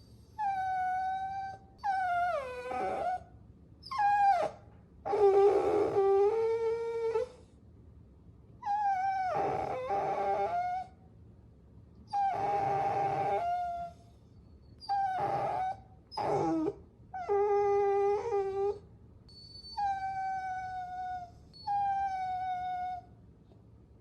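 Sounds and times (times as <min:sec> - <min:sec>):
puppy whining: 0:00.1 - 0:07.5, 0:08.6 - 0:11.0, 0:12.1 - 0:23.2.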